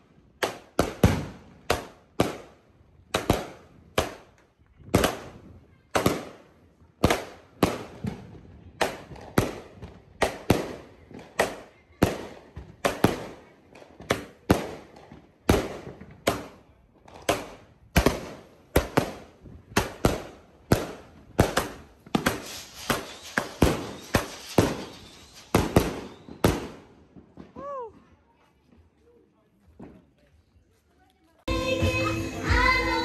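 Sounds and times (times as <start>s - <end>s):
firework shots banging: 7.0s - 27.6s
firework crackling: 7.0s - 27.9s.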